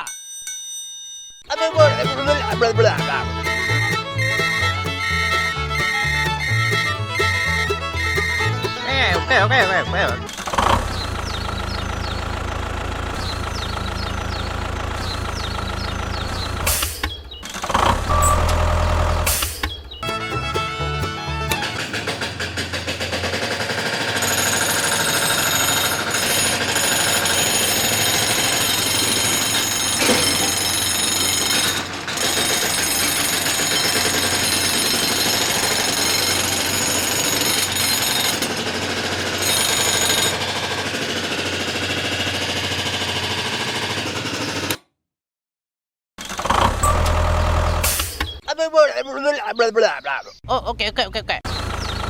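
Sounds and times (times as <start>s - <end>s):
small machine rattling: 2.6s - 18.1s, 21.5s - 44.8s.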